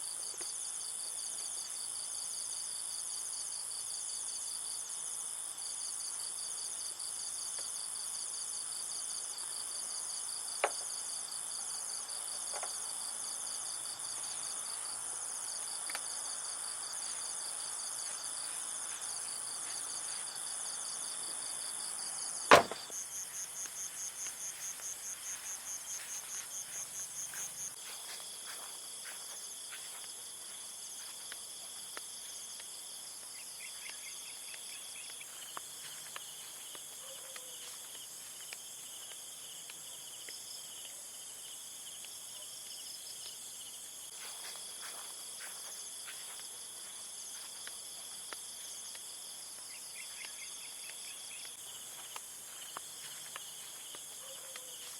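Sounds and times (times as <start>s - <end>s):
insects chirring: 7.1s - 42.2s, 42.8s - 54.9s
sharp knock: 22.5s - 22.9s.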